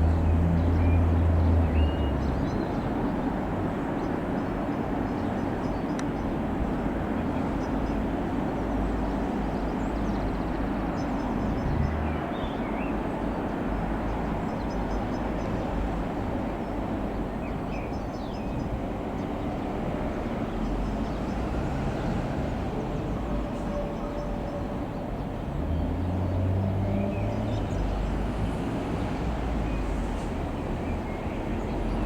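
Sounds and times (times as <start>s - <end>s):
wind buffeting microphone: 5.0s - 12.1s.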